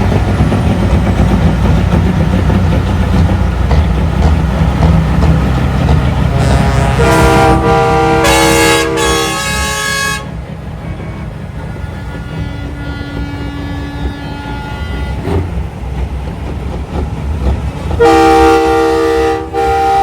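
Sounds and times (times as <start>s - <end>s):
diesel truck engines rumbling: 0.0s - 20.0s
truck air horns blasting: 6.3s - 15.4s, 18.0s - 20.0s.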